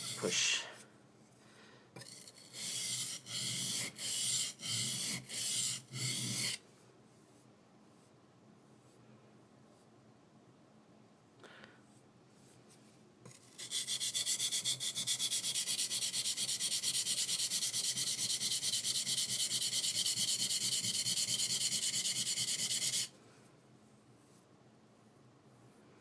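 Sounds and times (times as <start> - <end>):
knife scraping on a whetstone: 0.0 - 0.4, 2.0 - 6.6, 13.3 - 23.1.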